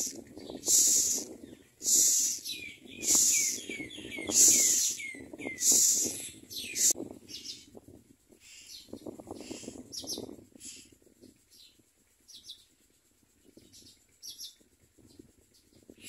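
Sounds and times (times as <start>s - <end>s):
nestlings begging rasp: 0.0s - 7.7s.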